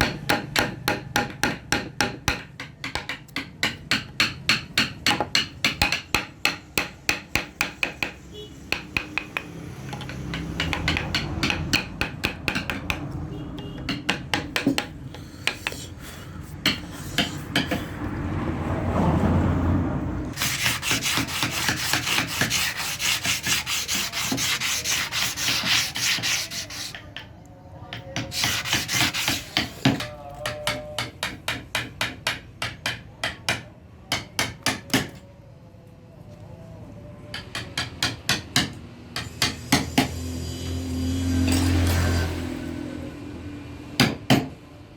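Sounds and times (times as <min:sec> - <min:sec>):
carving tools scraping wood: 0:00.0 - 0:13.2, 0:13.8 - 0:18.0, 0:20.3 - 0:35.2, 0:37.4 - 0:40.2.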